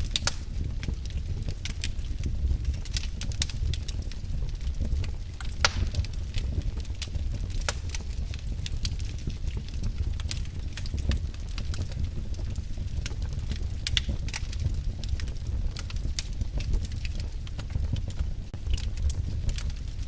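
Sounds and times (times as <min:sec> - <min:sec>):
firewood crackling and popping: 0:00.0 - 0:20.0
low rumble of flames: 0:00.0 - 0:20.0.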